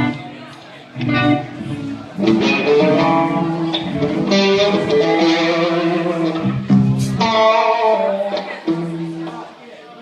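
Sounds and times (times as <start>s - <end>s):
electric guitar strummed chords: 1.0s - 9.4s.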